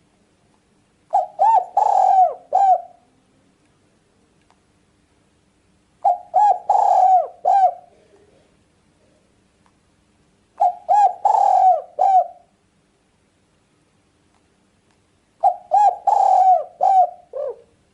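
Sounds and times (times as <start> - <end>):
dove cooing: 1.1 - 3.2, 6.0 - 8.2, 10.6 - 12.5, 15.4 - 17.8.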